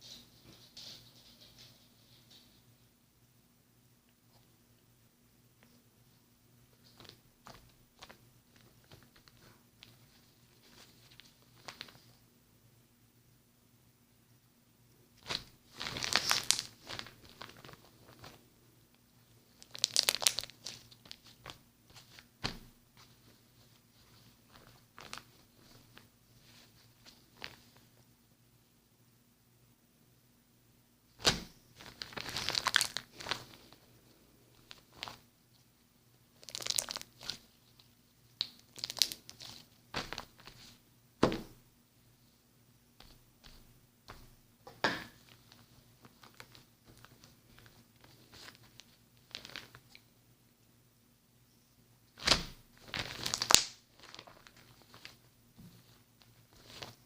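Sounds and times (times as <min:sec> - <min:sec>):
slime crackling by hand: 0:15.2 - 0:18.4, 0:19.5 - 0:27.7, 0:31.2 - 0:33.8, 0:36.3 - 0:40.8, 0:45.2 - 0:50.0, 0:52.2 - 0:55.2.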